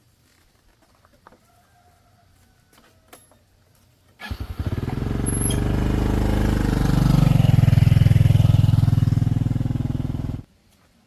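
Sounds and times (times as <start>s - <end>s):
small motorbike engine running: 4.2s - 10.4s.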